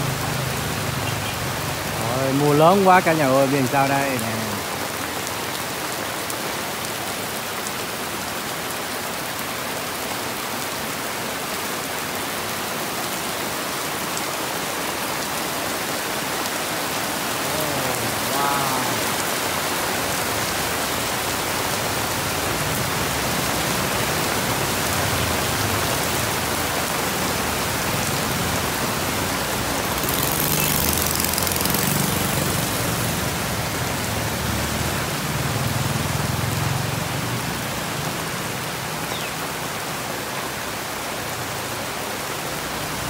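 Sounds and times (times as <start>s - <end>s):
heavy rain on a wet street: 0.0s - 43.0s
motorbikes riding past: 17.3s - 19.2s, 22.0s - 38.8s.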